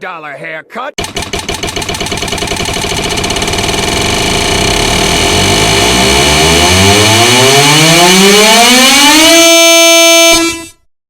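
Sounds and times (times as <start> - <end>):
race car engine accelerating: 3.2 - 9.5.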